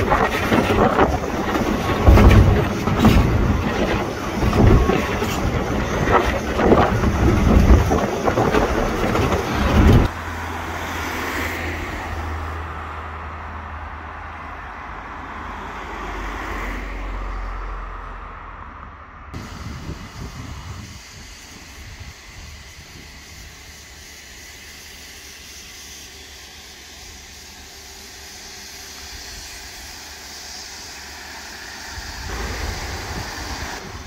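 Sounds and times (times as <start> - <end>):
wind gusting on microphone: 0.0 - 10.1, 19.3 - 23.8, 31.8 - 34.0
train passing close by: 0.0 - 34.0.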